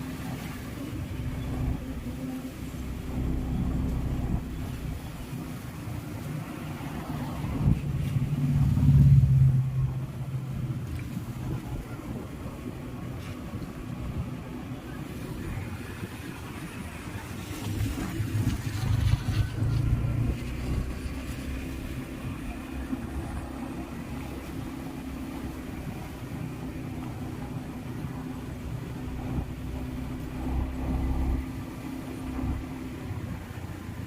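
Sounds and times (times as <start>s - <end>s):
motor vehicle running: 0.0s - 34.0s.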